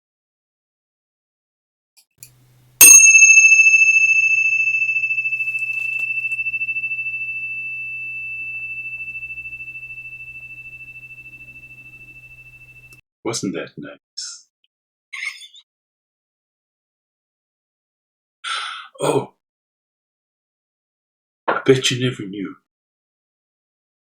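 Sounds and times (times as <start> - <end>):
meditation bell ringing: 2.8 - 13.0.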